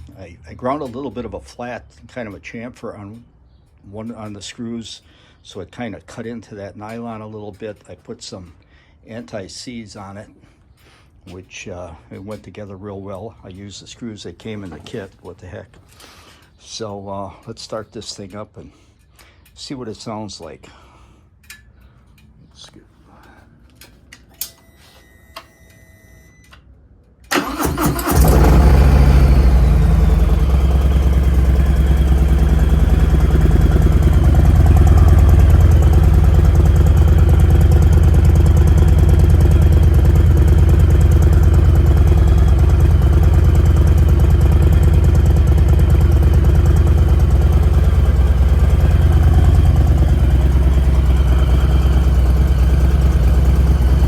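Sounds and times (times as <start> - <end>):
motorcycle engine starting and idling: 27.2 - 54.0.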